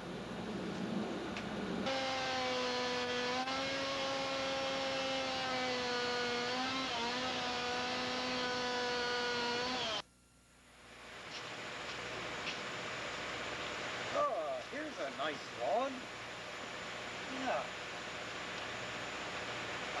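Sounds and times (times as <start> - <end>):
chainsaw engine revving: 1.8 - 10.0.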